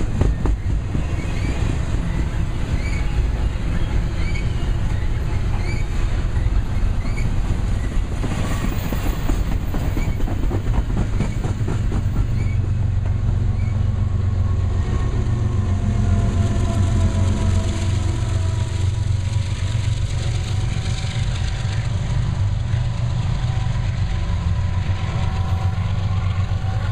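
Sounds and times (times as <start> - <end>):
train wheels clicking over rail joints: 0.0 - 13.8
low diesel locomotive drone: 0.0 - 26.9.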